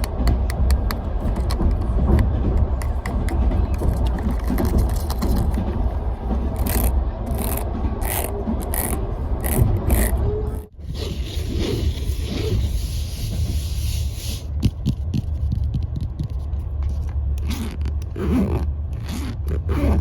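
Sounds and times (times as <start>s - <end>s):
moving train rumble: 0.0s - 20.0s
object scraping and rubbing: 4.0s - 20.0s.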